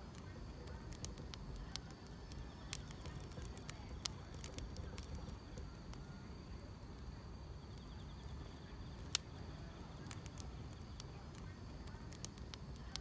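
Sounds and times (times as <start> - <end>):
grass insects chirring: 0.0 - 6.0
wood fire crackling: 0.0 - 13.0.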